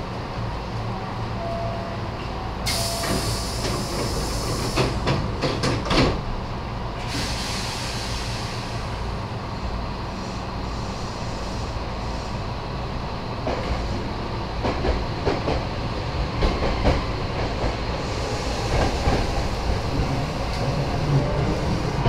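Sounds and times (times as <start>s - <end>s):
electric train low hum: 0.0s - 22.0s
air hiss: 2.7s - 5.0s, 7.0s - 9.1s.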